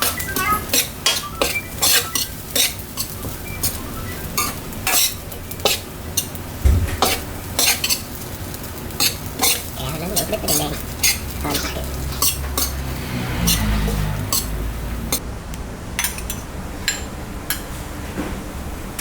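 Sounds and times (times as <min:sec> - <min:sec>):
food sizzling: 0:00.0 - 0:15.2
metal spatula scraping a pan: 0:00.1 - 0:03.2, 0:04.4 - 0:06.3, 0:07.0 - 0:08.2, 0:09.0 - 0:14.6
dull knock: 0:06.6 - 0:07.0.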